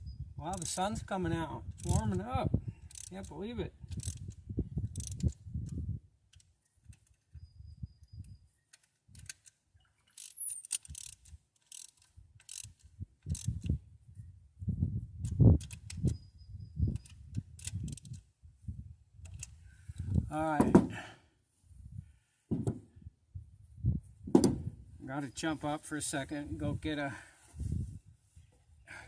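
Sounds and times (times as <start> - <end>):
ratchet wrench clicking: 1.7 - 2.2, 2.8 - 3.3, 3.9 - 5.4, 10.1 - 13.7, 16.9 - 18.2
tools knocking on metal: 22.5 - 22.8.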